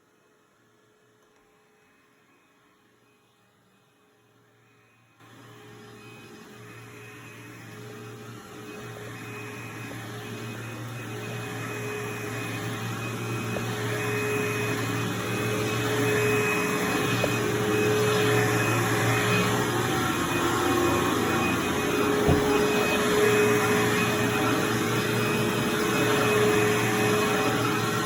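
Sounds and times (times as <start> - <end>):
vacuum cleaner humming and whining: 0.3 - 28.0
knock: 22.2 - 22.6.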